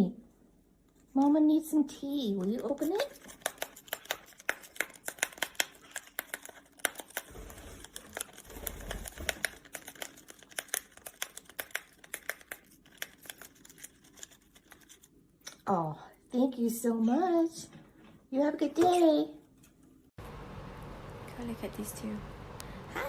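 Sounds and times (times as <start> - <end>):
parrot tearing paper packet: 2.5 - 15.2.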